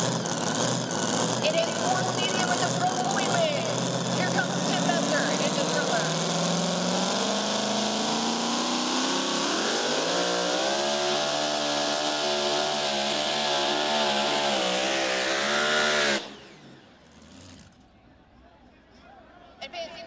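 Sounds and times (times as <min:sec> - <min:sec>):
engine revving at full throttle: 0:00.0 - 0:17.8.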